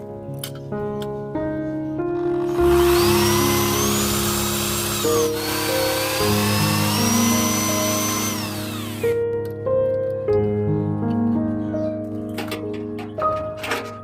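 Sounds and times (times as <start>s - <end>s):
background music: 0.0s - 14.0s
electric power tool whine: 2.3s - 9.2s.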